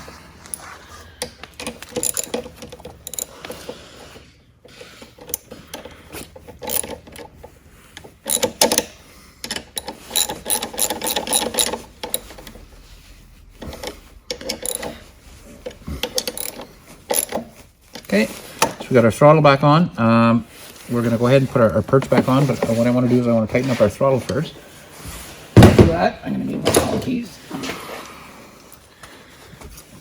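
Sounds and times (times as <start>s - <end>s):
hand ratchet clicking: 0.5s - 3.7s, 5.0s - 12.6s, 13.6s - 18.8s.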